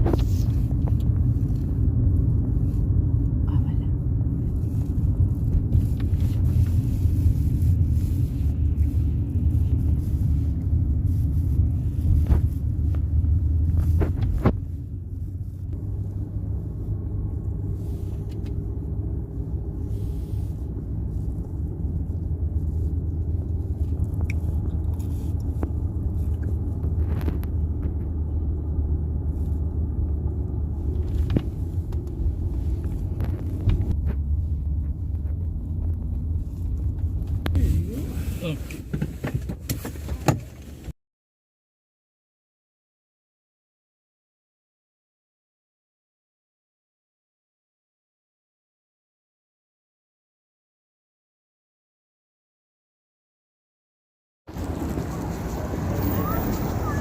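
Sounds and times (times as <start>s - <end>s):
car rumbling on the move: 0.0s - 41.0s, 54.5s - 57.0s.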